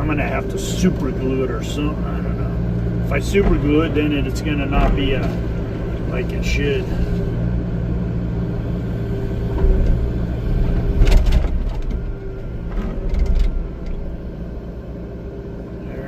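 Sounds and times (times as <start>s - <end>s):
excavator diesel engine working: 0.0s - 16.0s
knocks and rattles: 10.6s - 14.0s.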